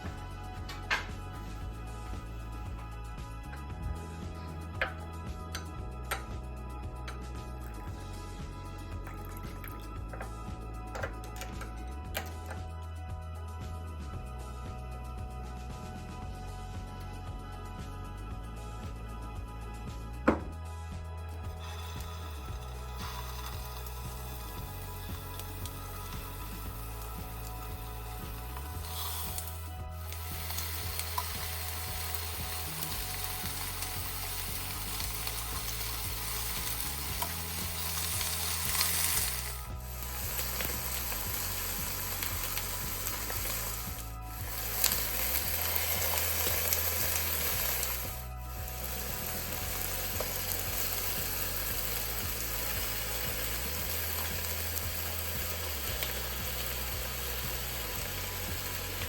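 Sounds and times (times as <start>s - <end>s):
food sizzling in oil: 21.6s - 59.0s.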